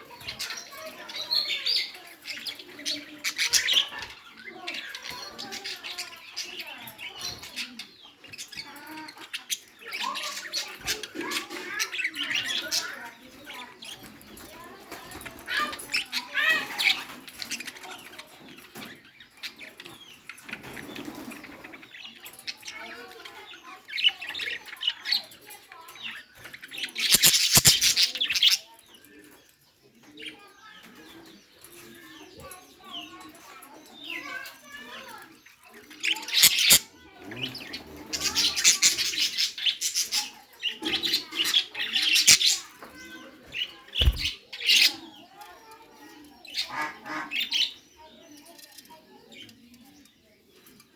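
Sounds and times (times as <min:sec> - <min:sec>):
birds chirping: 0:00.0 - 0:50.9
sharp clicks: 0:27.1 - 0:27.9, 0:36.4 - 0:36.8
wings flapping: 0:27.1 - 0:27.9, 0:44.0 - 0:44.4.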